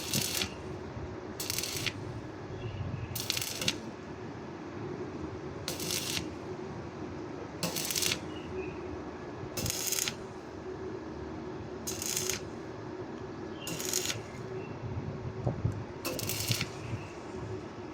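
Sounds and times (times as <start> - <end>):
welding arc crackling: 0.0 - 0.8, 1.4 - 2.2, 3.2 - 4.0, 5.7 - 6.4, 7.6 - 8.4, 9.6 - 10.4, 11.9 - 12.6, 13.7 - 14.5, 16.1 - 17.0
steady low hum: 0.0 - 17.9.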